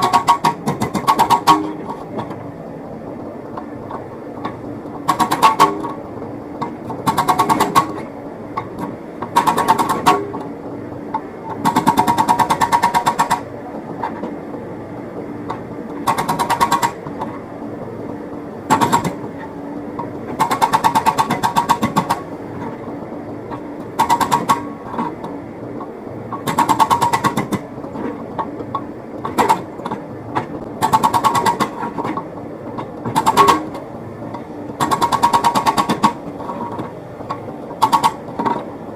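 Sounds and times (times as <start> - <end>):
hydraulic breaker hammering: 0.0 - 2.3, 5.0 - 6.0, 6.6 - 8.1, 9.2 - 10.4, 11.6 - 13.5, 16.0 - 17.2, 18.7 - 19.2, 20.3 - 22.2, 23.9 - 25.1, 26.4 - 27.6, 30.8 - 32.2, 33.0 - 33.8, 34.7 - 36.9, 37.8 - 38.6
excavator diesel engine running: 0.0 - 38.9.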